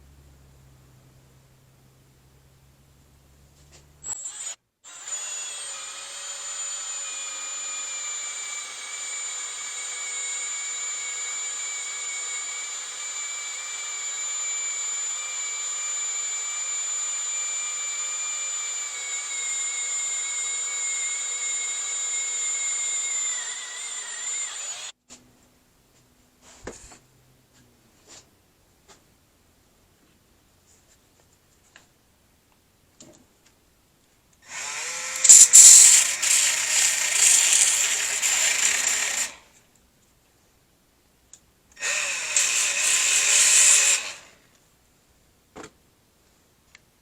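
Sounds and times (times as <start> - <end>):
power tool high whine: 4.0 - 25.0, 34.4 - 39.4, 41.8 - 44.3.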